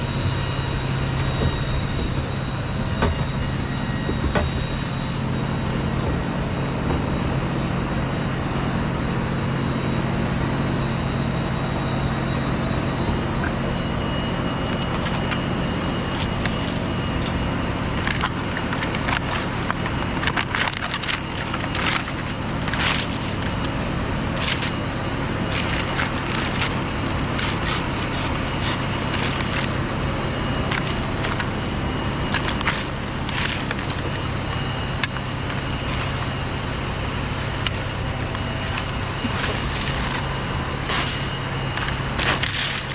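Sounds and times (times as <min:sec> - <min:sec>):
motor drone: 0:00.0 - 0:42.9
palm fronds snapping: 0:25.5 - 0:29.8.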